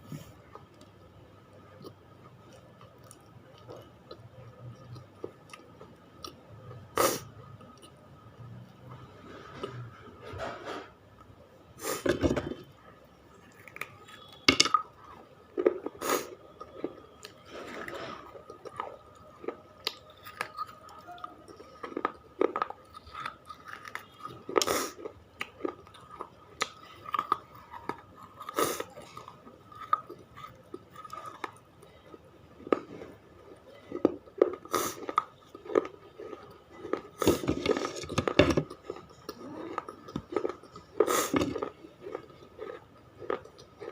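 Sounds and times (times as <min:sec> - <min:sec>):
gritty chewing: 0:15.6 - 0:43.9.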